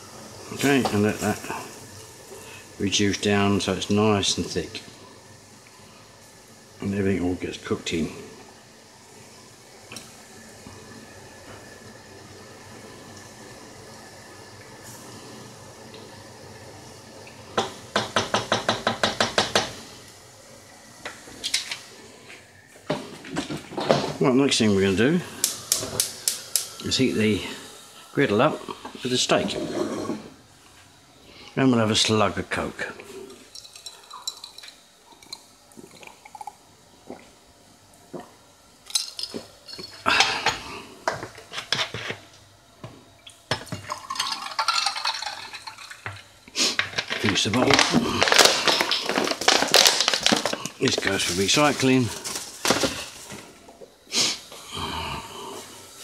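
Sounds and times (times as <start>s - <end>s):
sauce simmering in a pan: 0.0s - 22.6s
glass and utensils clinking: 33.5s - 35.4s, 38.9s - 40.6s, 43.5s - 46.2s
drink poured into a glass: 33.5s - 37.4s, 43.5s - 46.2s.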